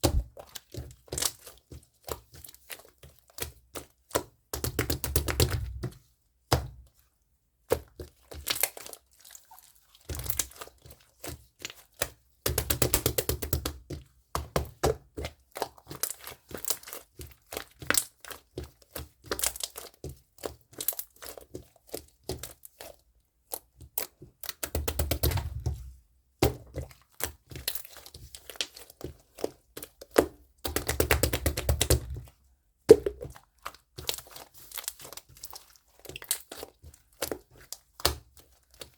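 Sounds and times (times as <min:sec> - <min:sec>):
crackling and crinkling handling: 0:15.0 - 0:38.9.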